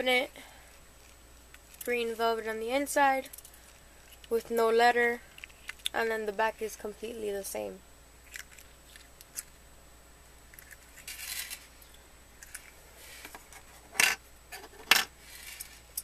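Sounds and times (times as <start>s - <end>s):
scratchy rustle: 10.6s - 11.7s, 15.2s - 15.9s.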